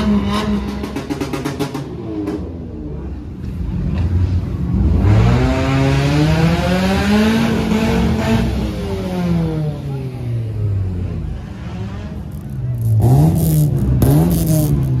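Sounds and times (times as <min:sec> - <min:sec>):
car engine accelerating: 0:11.0 - 0:15.0.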